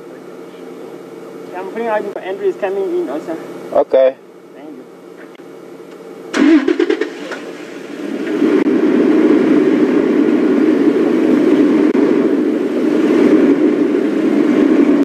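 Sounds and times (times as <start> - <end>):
vehicle engine starting: 6.3 - 15.0.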